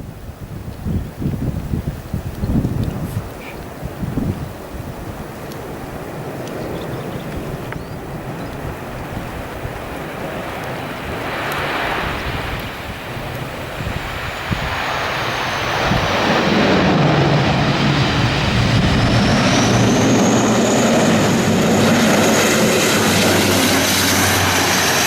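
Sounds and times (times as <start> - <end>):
wind gusting on microphone: 0.0 - 25.0
airplane engines roaring: 2.4 - 25.0
high engine whine: 13.4 - 25.0.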